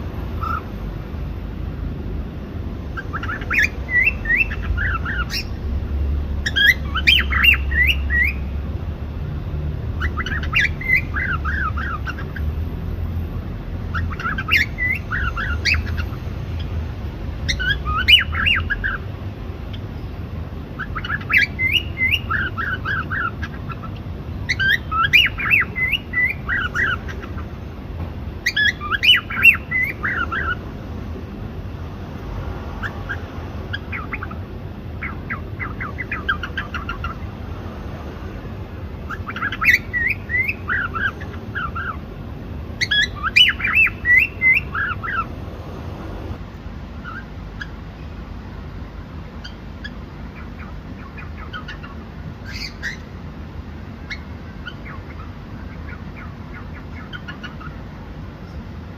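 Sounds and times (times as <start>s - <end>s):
steady low hum: 0.0s - 58.9s
cockatiel chirping: 0.4s - 0.7s, 3.0s - 5.6s, 6.4s - 8.5s, 10.0s - 12.5s, 13.9s - 16.7s, 17.4s - 19.1s, 20.8s - 27.5s, 28.4s - 30.6s, 32.8s - 34.4s, 35.0s - 37.2s, 39.1s - 42.0s, 42.8s - 45.3s, 47.0s - 47.8s, 49.4s - 53.1s, 54.1s - 57.8s.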